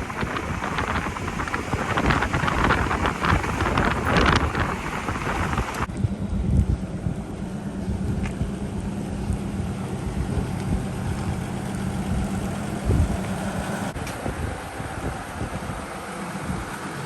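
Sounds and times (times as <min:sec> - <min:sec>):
pickup truck engine running: 0:00.0 - 0:17.0
wind noise on microphone: 0:00.0 - 0:17.0.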